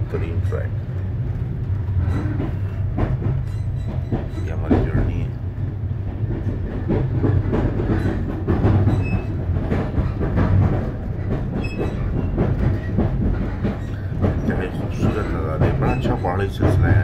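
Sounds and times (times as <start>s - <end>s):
train wheels rumbling on rails: 0.0s - 17.0s
clicks and rattles: 1.3s - 17.0s.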